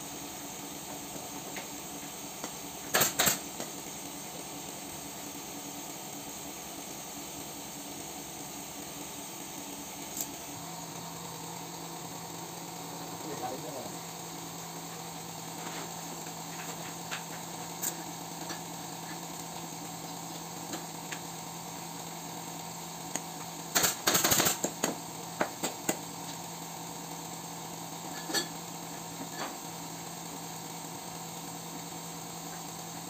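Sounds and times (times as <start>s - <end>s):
steady low hum: 0.0s - 24.1s
pneumatic staple gun firing: 2.9s - 3.4s, 23.7s - 25.0s.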